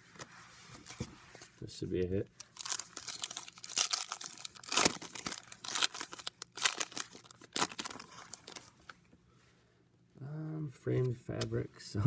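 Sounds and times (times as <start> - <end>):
wrapper crinkling and tearing: 2.4 - 8.9.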